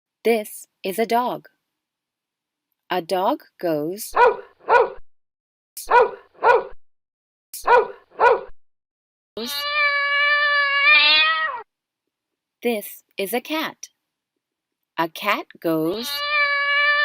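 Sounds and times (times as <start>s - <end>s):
cartoon dog barking: 4.1s - 5.0s, 5.8s - 6.8s, 7.6s - 8.5s.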